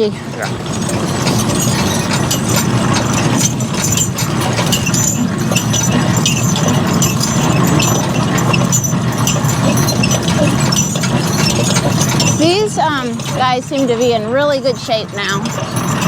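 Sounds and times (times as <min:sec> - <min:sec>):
harness chains jingling: 0:00.0 - 0:16.0
horse-drawn cart rumbling: 0:00.0 - 0:16.0.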